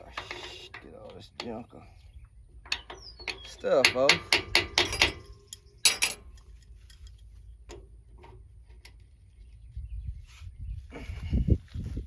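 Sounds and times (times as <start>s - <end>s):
metal tools scraping a fitting: 0.0s - 1.7s, 2.6s - 9.0s
metal tools clicking: 2.7s - 7.3s.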